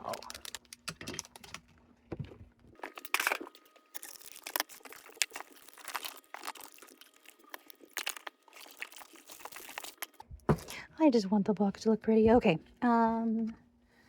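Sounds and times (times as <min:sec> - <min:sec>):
crinkly packaging rustling: 0:00.0 - 0:10.8.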